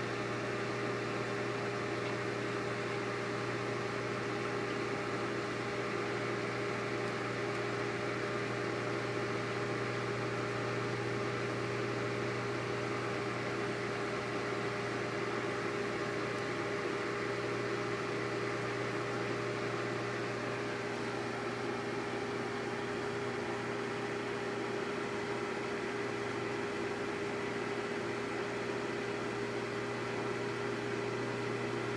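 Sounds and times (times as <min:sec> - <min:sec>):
microwave oven humming: 0:00.0 - 0:31.9.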